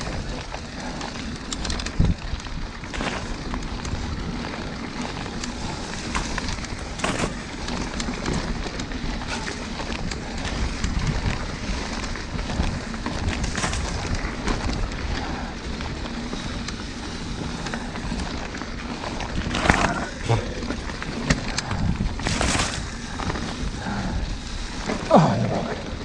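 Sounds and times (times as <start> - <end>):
rough rumble riding dirt trail: 0.0 - 26.0
wind rushing over microphone: 19.2 - 26.0.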